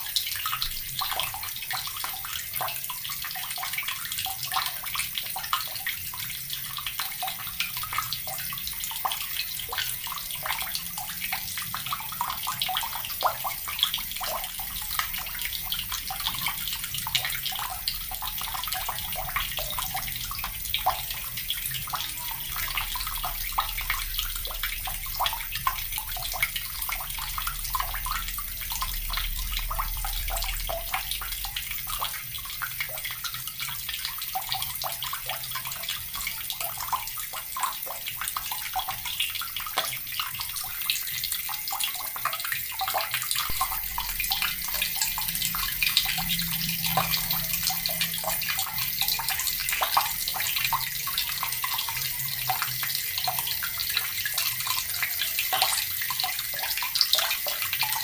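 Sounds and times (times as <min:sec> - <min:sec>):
tap water splashing into bucket: 0:00.0 - 0:58.0.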